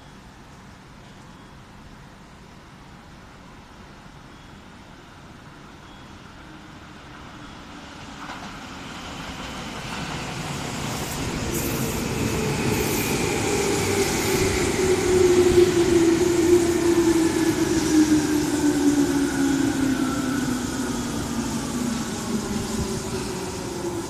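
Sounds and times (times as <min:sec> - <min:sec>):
electric train rumble: 0:05.4 - 0:24.0.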